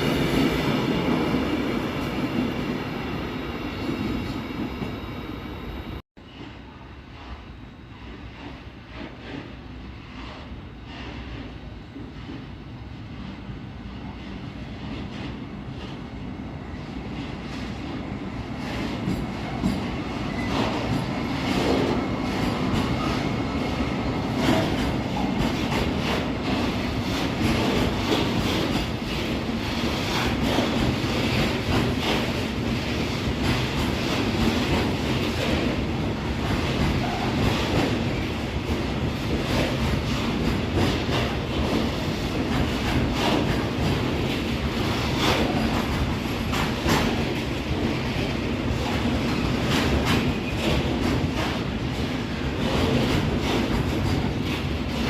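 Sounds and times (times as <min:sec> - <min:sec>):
train rolling past: 0:00.0 - 0:55.0.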